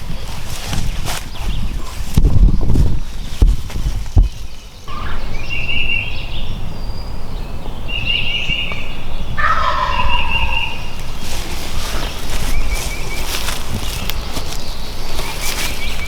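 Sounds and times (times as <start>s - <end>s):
turkey gobbling: 9.4s - 11.0s.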